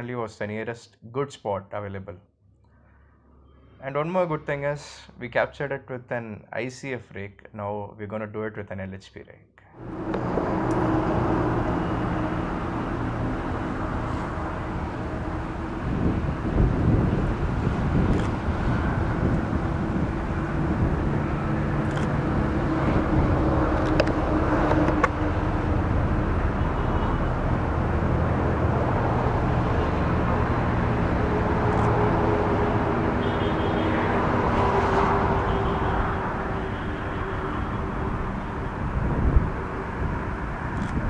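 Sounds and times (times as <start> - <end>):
diesel locomotive engine drone: 9.7 - 41.0.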